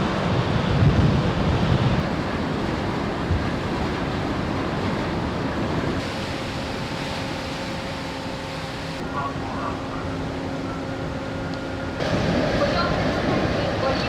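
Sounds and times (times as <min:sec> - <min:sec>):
wind buffeting microphone: 0:00.0 - 0:06.3
sea: 0:00.0 - 0:14.0.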